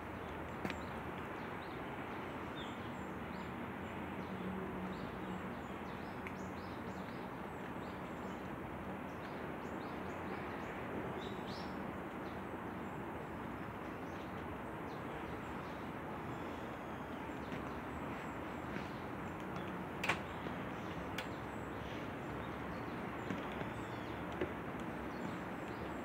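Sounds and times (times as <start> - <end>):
outdoor background hiss: 0.0 - 26.0
small birds chirping: 14.0 - 26.0.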